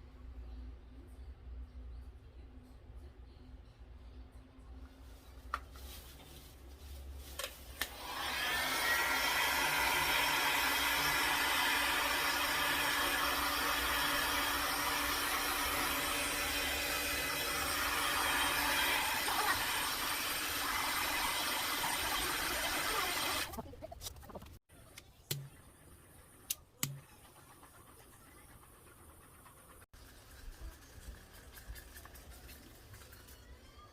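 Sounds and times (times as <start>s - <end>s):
hot-air blower whining: 7.8s - 23.4s.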